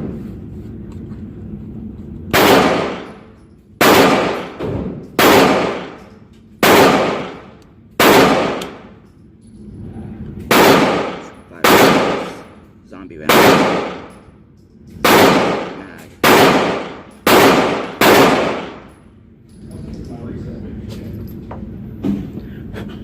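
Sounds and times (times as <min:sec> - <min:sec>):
pistol shots: 0:02.3 - 0:09.0, 0:10.5 - 0:12.6, 0:13.2 - 0:14.2, 0:15.0 - 0:19.0.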